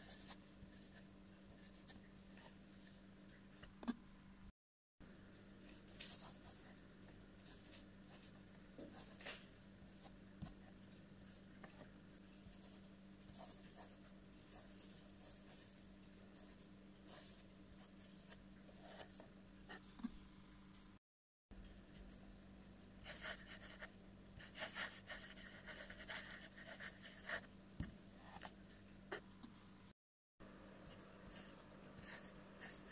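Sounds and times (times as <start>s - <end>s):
pen scratching on paper: 23.0s - 27.5s, 30.9s - 32.9s.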